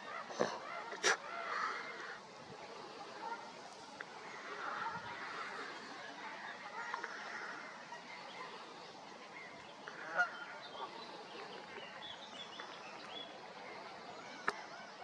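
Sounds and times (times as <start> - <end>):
steady background noise: 0.0 - 15.0
geese honking: 9.8 - 11.2.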